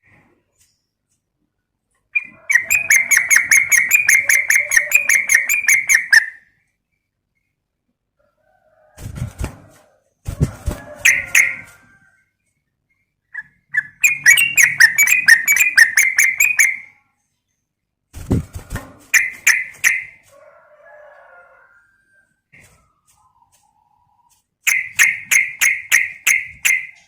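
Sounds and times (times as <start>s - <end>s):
bird chirping: 2.1s - 7.8s, 12.5s - 17.7s, 19.1s - 20.2s, 23.2s - 27.0s.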